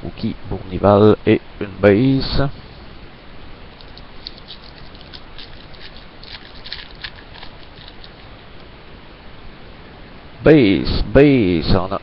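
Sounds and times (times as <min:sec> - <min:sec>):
steady hiss: 0:00.0 - 0:12.0
cards clicking and rustling: 0:03.8 - 0:08.2.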